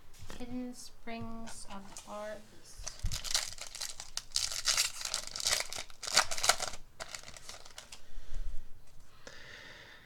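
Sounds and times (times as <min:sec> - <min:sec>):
foil wrapper crinkling and tearing: 0:02.8 - 0:08.0
handling of cards: 0:02.8 - 0:08.0.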